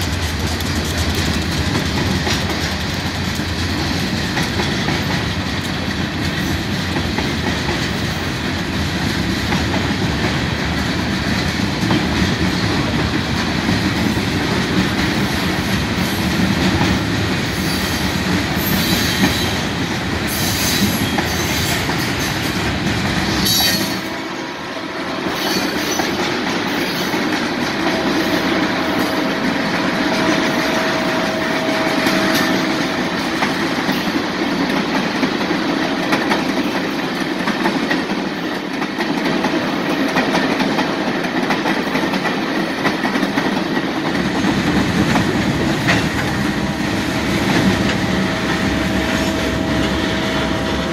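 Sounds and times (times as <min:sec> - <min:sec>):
wheels clicking on rails: 0:00.0 - 0:24.3, 0:25.2 - 0:50.9
train rumbling past: 0:00.0 - 0:50.9.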